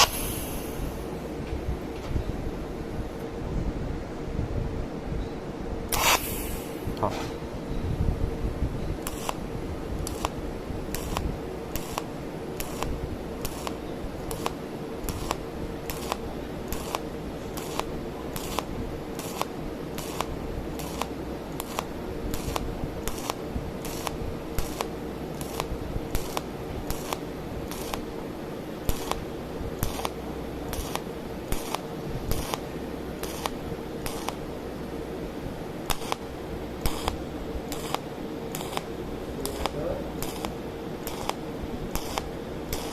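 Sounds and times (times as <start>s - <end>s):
weld pulse snaps: 0.0s - 0.8s, 5.9s - 6.8s, 9.0s - 9.4s, 10.0s - 28.0s, 28.9s - 34.4s, 35.9s - 42.9s
steady machine hum: 0.0s - 42.9s.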